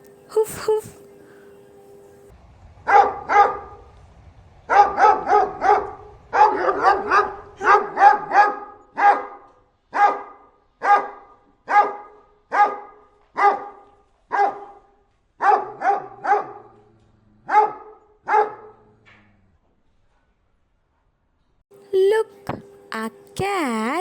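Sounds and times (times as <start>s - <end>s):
dog barking: 2.9s - 3.8s, 4.7s - 19.0s.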